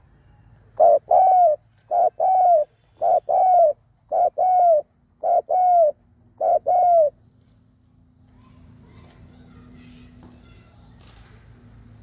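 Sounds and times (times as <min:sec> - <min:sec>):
dove cooing: 0:00.8 - 0:07.2.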